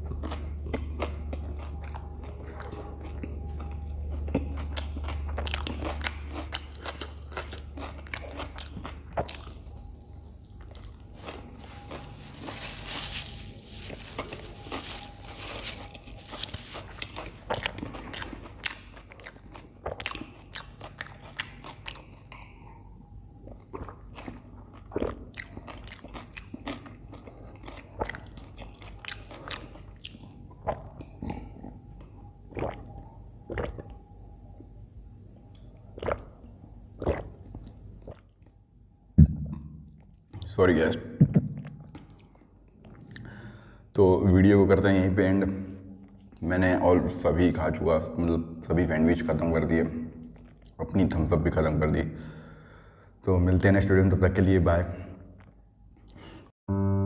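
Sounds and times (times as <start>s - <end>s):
chewing crunches: 0.0s - 22.8s, 23.4s - 34.0s, 35.5s - 36.4s, 37.0s - 38.6s
wet mouth clicks: 32.5s - 32.9s, 33.5s - 34.0s, 35.6s - 36.4s, 37.0s - 38.2s.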